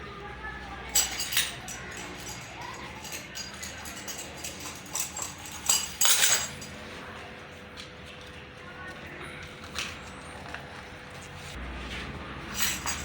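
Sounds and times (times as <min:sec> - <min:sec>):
hand tools clinking: 0:00.8 - 0:06.8, 0:12.5 - 0:13.0
metal clattering: 0:00.9 - 0:06.7.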